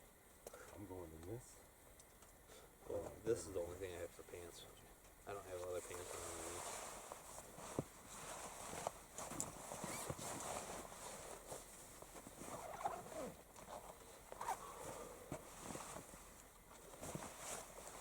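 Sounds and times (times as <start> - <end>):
clothing and gear handled: 5.8 - 18.0.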